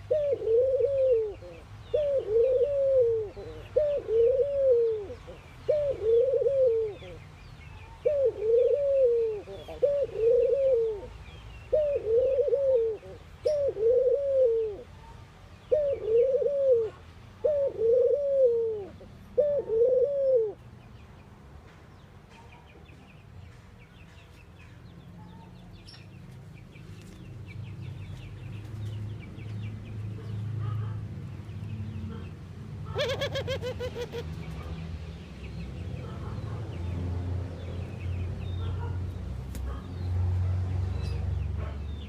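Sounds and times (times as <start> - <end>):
dove cooing: 0.0 - 7.2, 7.9 - 14.9, 15.7 - 20.6, 32.1 - 34.5
small birds chirping: 0.0 - 17.6, 20.5 - 42.0.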